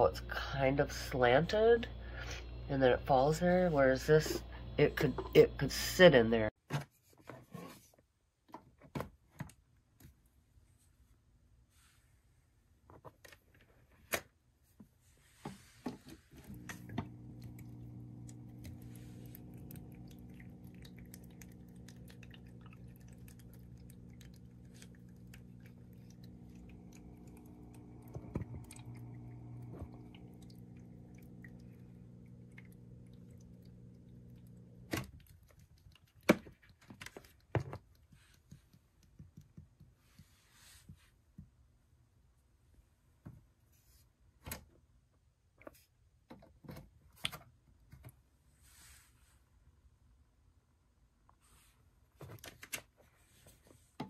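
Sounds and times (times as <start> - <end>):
water fountain pump humming: 0.0 - 6.5, 16.3 - 37.6.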